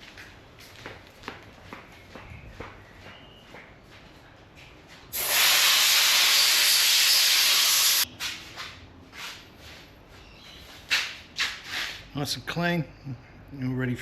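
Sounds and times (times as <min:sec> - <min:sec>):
compressed air blow gun hissing: 0:05.2 - 0:08.0.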